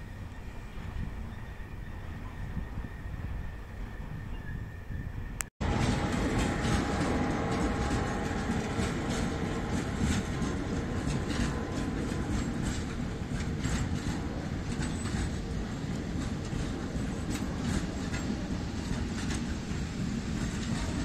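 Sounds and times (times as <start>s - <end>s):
freight train passing: 0.0s - 21.0s
wheels clicking over rail joints: 5.6s - 21.0s.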